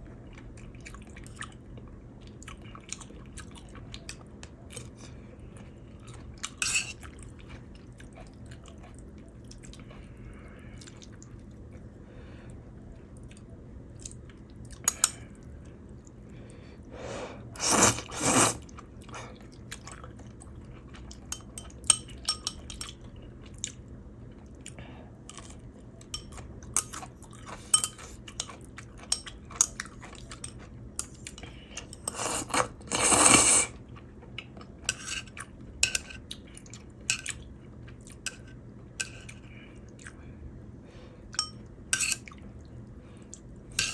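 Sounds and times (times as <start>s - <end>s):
person chewing: 17.6s - 21.5s, 26.3s - 35.5s.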